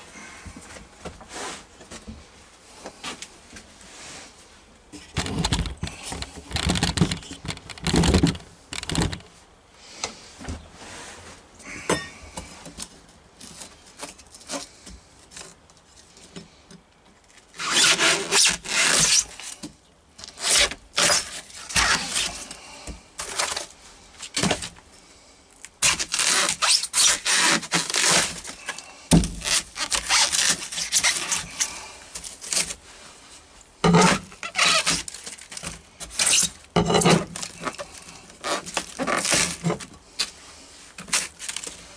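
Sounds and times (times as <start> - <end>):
hand tools scraping a floor: 1.2 - 1.7, 32.5 - 35.1, 36.0 - 41.9.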